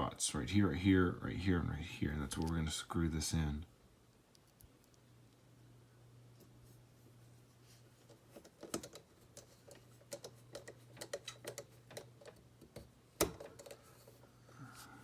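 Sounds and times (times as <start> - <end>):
small parts clicking and tapping: 4.2 - 5.4, 8.0 - 13.9.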